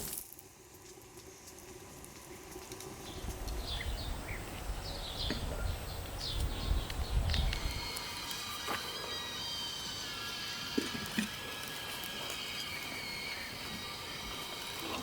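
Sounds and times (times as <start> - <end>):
small birds chirping: 3.0 - 10.4
low rumble: 3.2 - 7.9.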